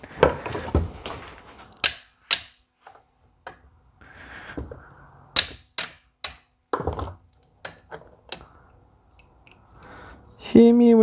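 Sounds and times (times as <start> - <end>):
metal tools tapping on metal: 1.8 - 2.6, 5.4 - 8.5.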